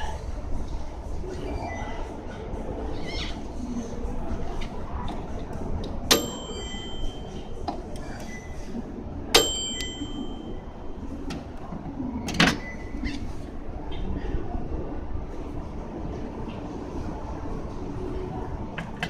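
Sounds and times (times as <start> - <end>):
store background noise: 0.0 - 19.0.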